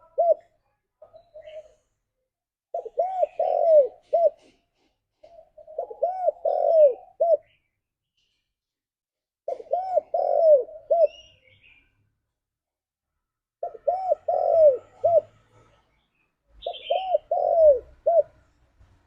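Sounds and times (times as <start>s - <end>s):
dove cooing: 0.0s - 0.6s, 2.7s - 4.6s, 5.2s - 7.6s, 9.5s - 11.5s, 13.6s - 15.4s, 16.6s - 18.5s.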